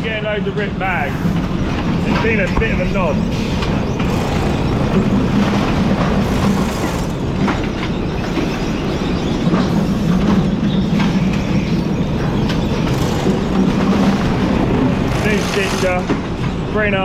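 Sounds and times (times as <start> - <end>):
low machine hum: 0.0 - 16.7
machinery rattling: 0.0 - 17.0
machinery knocks: 0.8 - 16.7.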